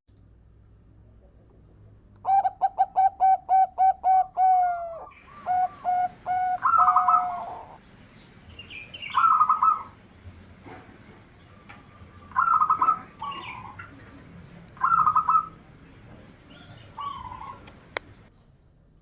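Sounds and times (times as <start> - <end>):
dove cooing: 2.2 - 7.8, 8.8 - 10.0, 11.4 - 18.3.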